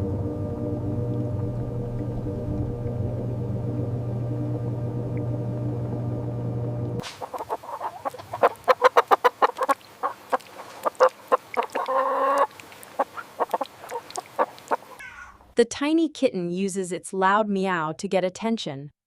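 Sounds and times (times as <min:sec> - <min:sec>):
chickens clucking: 0:07.0 - 0:15.3
chicken drawn-out call: 0:07.0 - 0:15.4.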